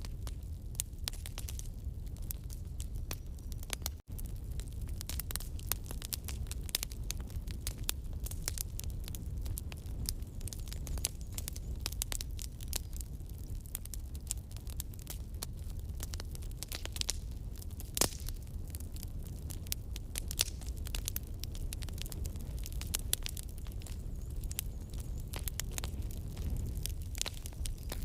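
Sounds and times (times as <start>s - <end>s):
campfire crackling and popping: 0.0s - 28.0s
low rumble of burning fire: 0.0s - 28.0s.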